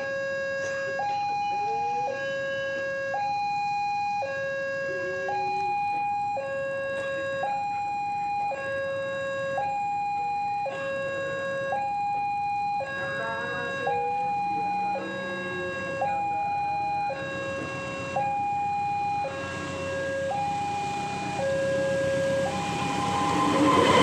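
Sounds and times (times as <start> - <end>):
level crossing two-tone alarm: 0.0 - 24.0.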